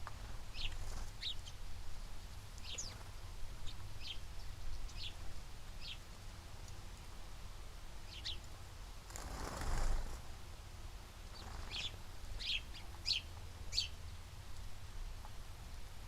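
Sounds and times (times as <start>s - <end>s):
small bird chirping: 0.5s - 1.6s, 2.6s - 5.2s, 5.8s - 6.8s, 8.1s - 8.5s, 11.3s - 14.2s.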